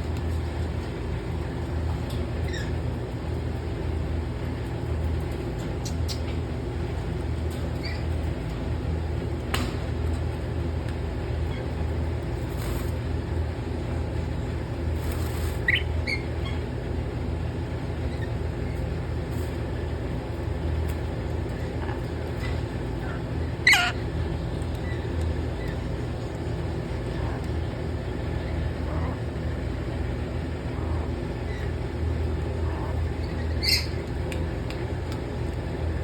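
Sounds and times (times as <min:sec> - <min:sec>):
steady low hum: 0:00.0 - 0:36.0
parrot squawks: 0:23.6 - 0:24.0.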